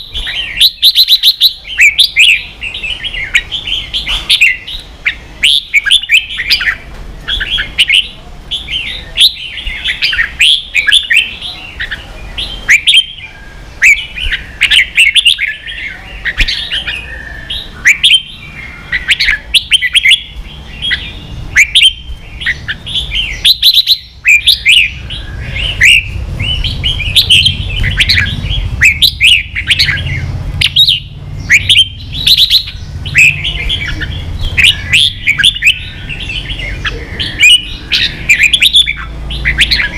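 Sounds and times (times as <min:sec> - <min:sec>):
birds chattering song: 0:00.0 - 0:39.9.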